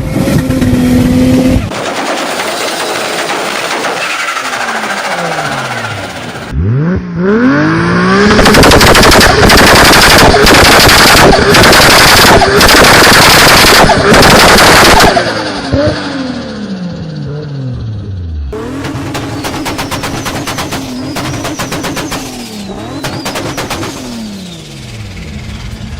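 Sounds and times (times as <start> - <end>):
car engine revving: 0.0 - 25.9
exhaust pops and bangs: 18.6 - 24.3.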